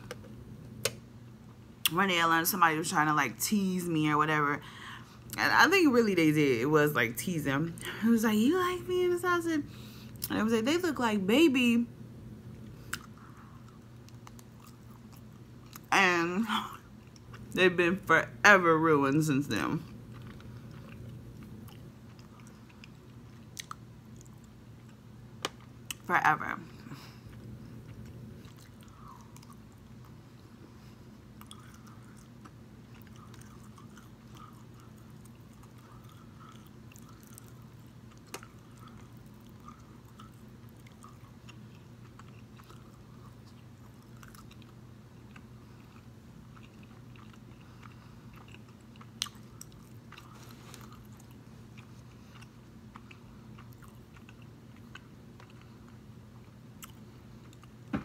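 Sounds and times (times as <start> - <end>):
person chewing: 12.6 - 15.9, 19.9 - 26.1, 26.9 - 57.8.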